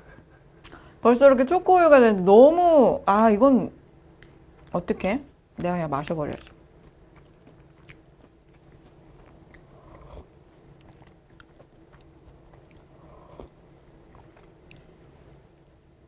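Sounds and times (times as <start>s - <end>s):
person chewing: 6.3s - 15.0s.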